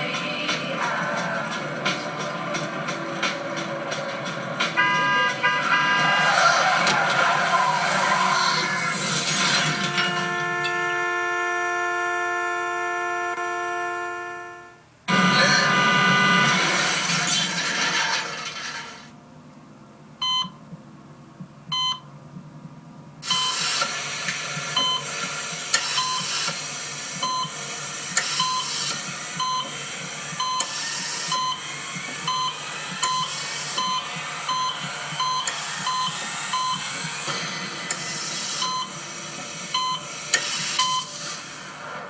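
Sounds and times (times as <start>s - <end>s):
loud steady hiss: 0.0s - 12.6s, 23.0s - 42.0s
short electronic warning beeps: 4.8s - 6.1s, 21.7s - 22.1s, 25.9s - 26.3s, 32.3s - 36.8s, 38.6s - 39.0s, 40.8s - 41.2s.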